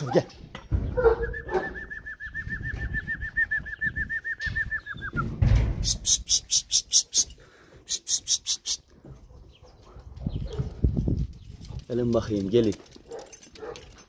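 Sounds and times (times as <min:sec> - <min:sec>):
dull thump: 0:05.1 - 0:06.0.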